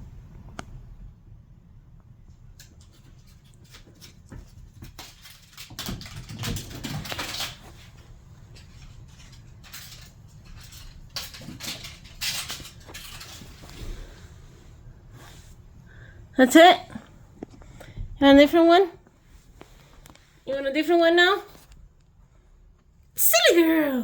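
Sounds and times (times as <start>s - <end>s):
kitten scuffling and tapping: 2.3s - 14.4s.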